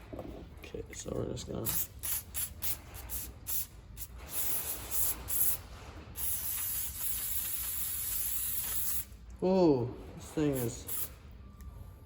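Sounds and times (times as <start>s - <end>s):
aerosol can spraying: 1.7s - 5.6s, 6.2s - 9.1s, 10.5s - 11.1s.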